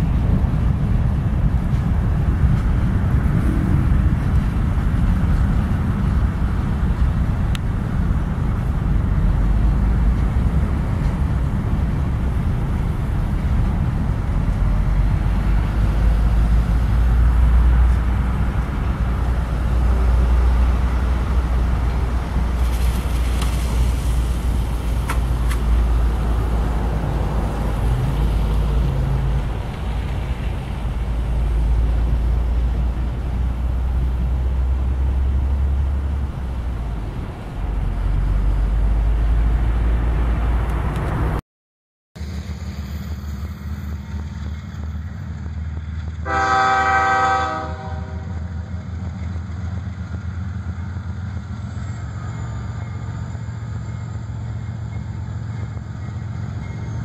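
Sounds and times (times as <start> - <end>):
steady low drone: 0.0 - 22.6
freight cars rumbling past: 0.0 - 41.4, 42.2 - 57.0
train horn: 46.2 - 48.5.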